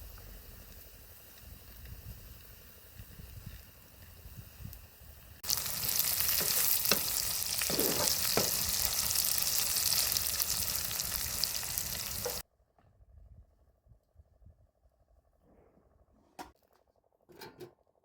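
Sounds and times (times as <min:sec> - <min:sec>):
food sizzling in a frying pan: 0:00.0 - 0:12.4
utensil knocking in a pan: 0:06.2 - 0:08.9.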